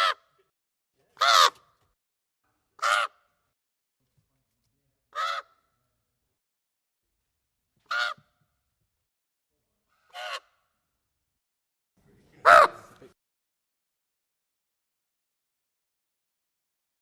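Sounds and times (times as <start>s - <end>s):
raven cawing: 0.0s - 0.4s, 1.2s - 1.8s, 2.8s - 3.4s, 5.2s - 5.8s, 7.9s - 8.4s, 10.1s - 10.7s, 12.4s - 13.0s.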